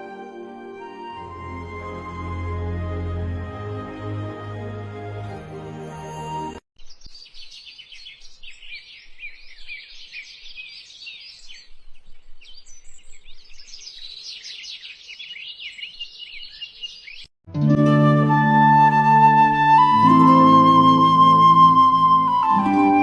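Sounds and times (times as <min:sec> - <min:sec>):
music: 0:00.0 - 0:06.6, 0:17.5 - 0:23.0
small birds chirping: 0:06.8 - 0:17.3.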